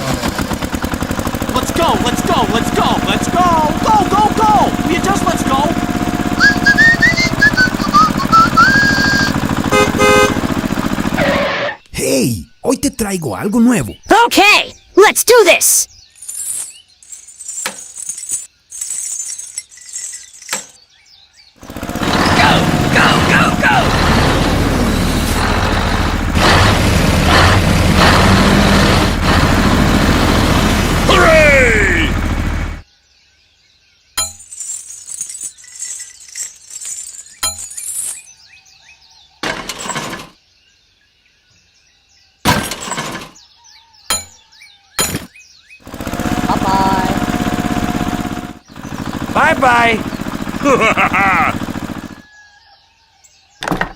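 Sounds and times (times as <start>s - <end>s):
birds chirping faintly: 1.4s - 10.3s, 11.7s - 26.3s, 29.7s - 53.9s
crashes and clinks: 16.0s - 20.9s, 34.2s - 38.4s, 39.4s - 40.4s, 42.5s - 43.4s, 45.0s - 45.3s.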